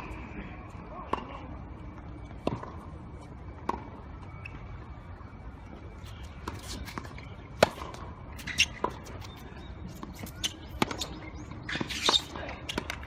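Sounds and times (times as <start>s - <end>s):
low background noise: 0.0s - 13.0s
tennis ball struck by rackets: 6.4s - 9.2s, 9.9s - 13.0s.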